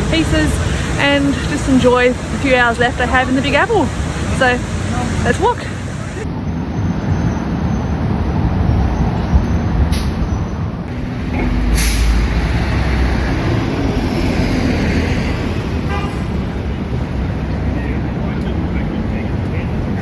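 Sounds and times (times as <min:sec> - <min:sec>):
low vehicle rumble: 0:00.0 - 0:07.3, 0:08.0 - 0:20.0
road traffic noise: 0:00.0 - 0:20.0
short sharp hiss: 0:11.6 - 0:12.3.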